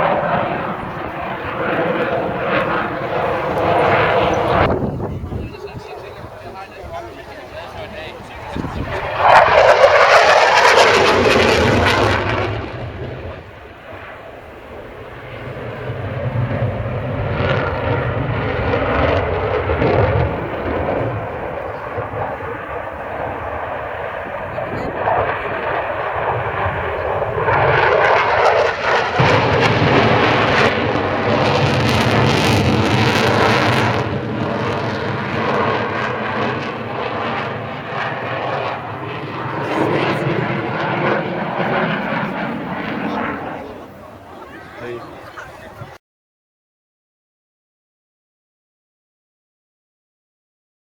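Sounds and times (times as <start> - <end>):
fighter jet flying past: 0.0 - 46.0.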